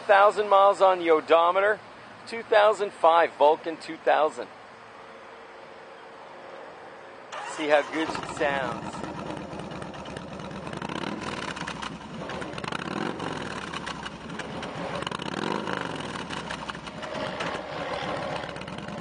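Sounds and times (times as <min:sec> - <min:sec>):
motorcycle engine idling and revving: 0:07.3 - 0:19.0.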